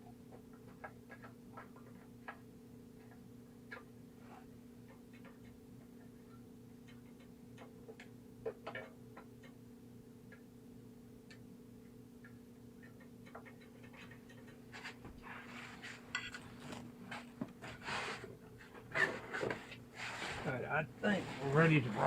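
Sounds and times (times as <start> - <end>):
steady low hum: 0.0 - 22.0
clatter and rustling: 13.3 - 20.6.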